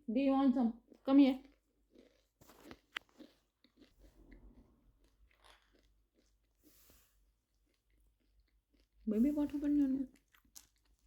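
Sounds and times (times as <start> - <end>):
parrot crunching a crisp: 1.5 - 6.9, 10.1 - 11.0.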